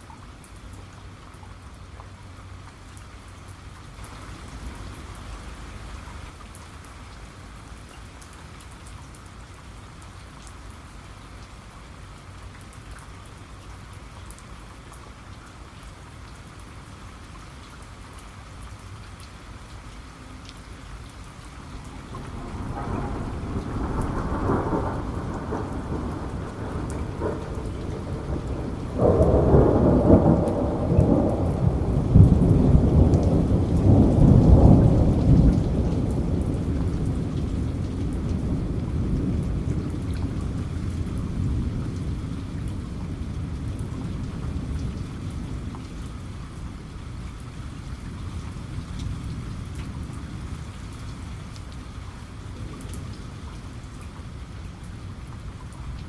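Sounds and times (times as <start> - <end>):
steady rain falling: 0.0 - 56.0
thunder rumbling: 21.6 - 46.2.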